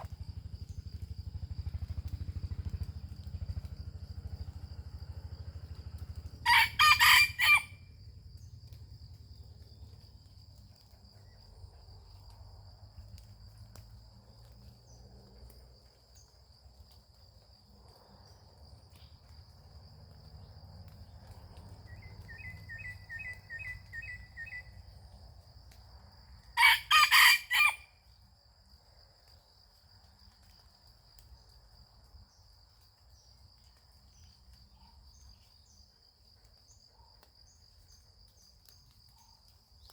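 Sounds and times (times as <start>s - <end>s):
high insect whine: 0.0s - 34.4s
rooster crowing: 6.4s - 7.9s, 21.9s - 24.6s, 26.6s - 27.9s
small bird chirping: 21.2s - 24.8s.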